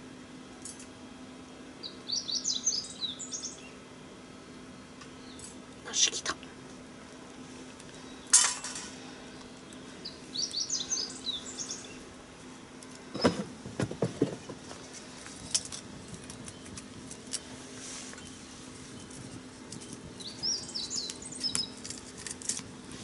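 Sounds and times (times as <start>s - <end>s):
small bird chirping: 1.8s - 3.8s, 9.4s - 12.1s, 18.2s - 21.9s
knocks: 13.2s - 14.6s.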